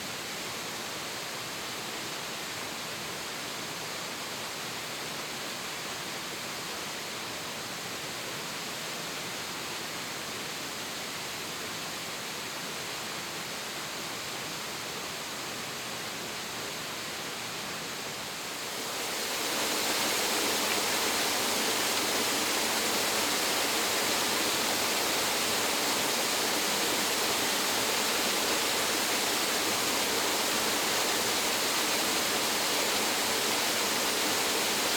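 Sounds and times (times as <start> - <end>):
waterfall roaring: 18.4 - 34.9.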